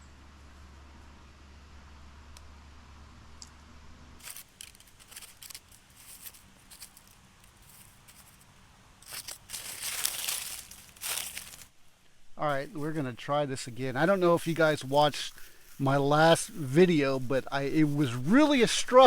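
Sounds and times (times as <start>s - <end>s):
pine needles and twigs crunching: 4.2s - 19.0s.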